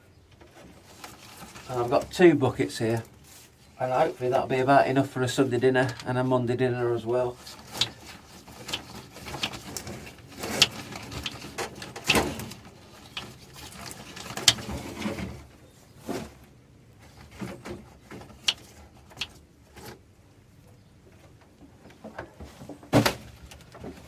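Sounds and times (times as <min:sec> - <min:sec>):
objects handled with clicks and knocks: 0:00.1 - 0:02.1, 0:07.3 - 0:24.0.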